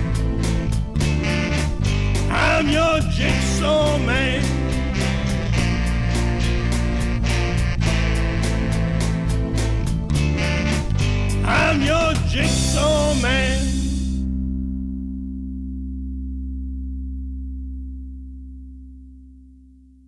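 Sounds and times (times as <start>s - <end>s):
rock band playing: 0.0s - 14.2s
bending lead guitar melody: 0.0s - 19.2s.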